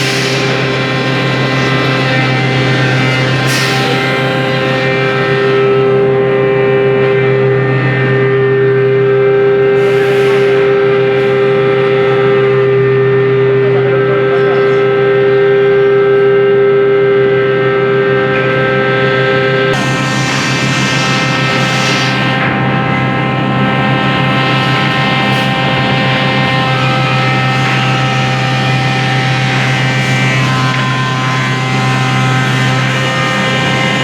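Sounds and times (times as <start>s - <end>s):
machine hum: 0.0s - 34.0s
spindle whine: 0.0s - 34.0s
short air hisses: 9.8s - 10.7s.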